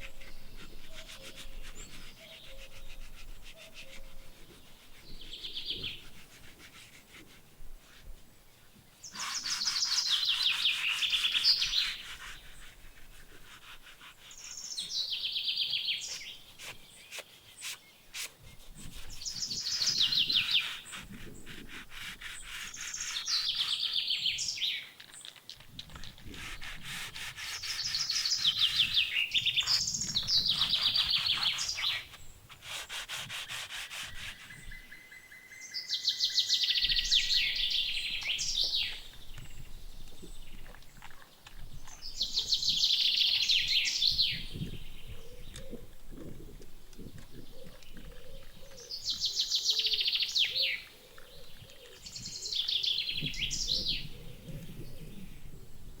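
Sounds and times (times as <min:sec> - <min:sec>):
clicks and rubbing sounds: 0:24.9 - 0:34.7
songbird trilling: 0:27.4 - 0:32.3.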